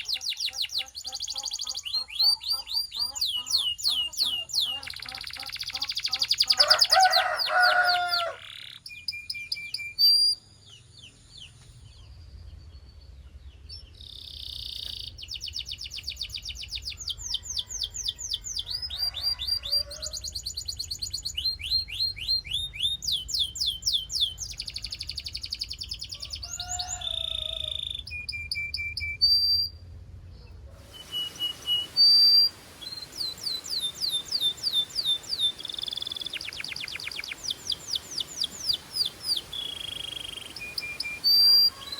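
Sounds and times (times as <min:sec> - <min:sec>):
canary singing trills: 0:00.0 - 0:11.6, 0:13.6 - 0:29.8, 0:30.8 - 0:41.9.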